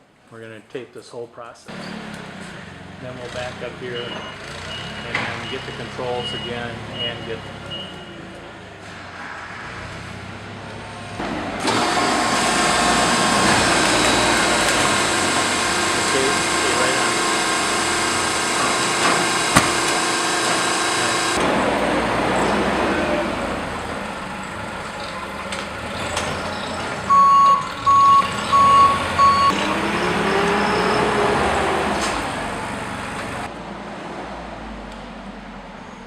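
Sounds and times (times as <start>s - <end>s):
electronic warning beeps: 4.0s - 8.2s, 26.4s - 29.6s
industrial machine noise: 7.7s - 33.5s.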